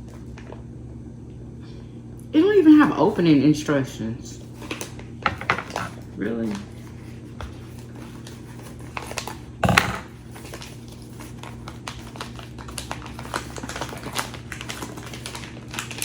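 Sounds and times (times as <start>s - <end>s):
plastic package crackling: 10.2s - 16.0s.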